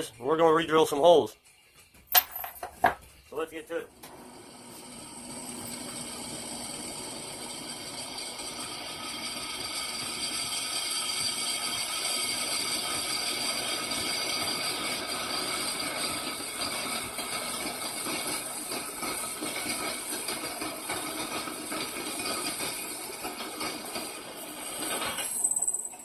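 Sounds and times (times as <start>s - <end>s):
electric drill boring through steel: 4.0s - 26.0s.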